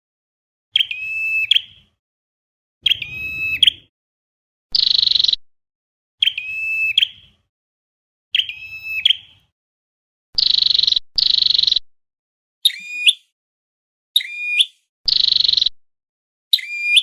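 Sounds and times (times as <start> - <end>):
upward whistled bird calls: 0.7 - 1.8, 2.8 - 3.9, 6.2 - 7.3, 8.3 - 9.4, 10.4 - 11.8, 12.6 - 13.4, 14.2 - 15.8, 16.5 - 17.0
buzzy bird calls: 2.8 - 3.9.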